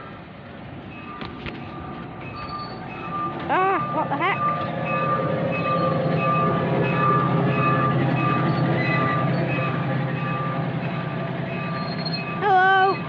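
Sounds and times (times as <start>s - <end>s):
locomotive engine humming: 0.0s - 13.0s
short high-pitched squeaks: 1.1s - 3.5s, 11.5s - 13.0s.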